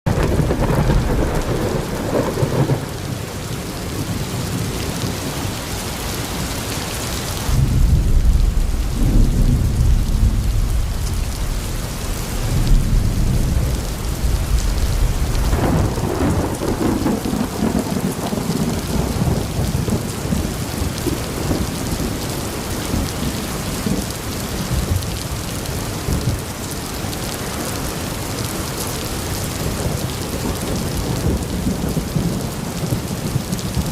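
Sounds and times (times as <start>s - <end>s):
thunder rolling: 0.1s - 3.2s, 7.5s - 24.1s
steady rain falling: 0.1s - 33.9s.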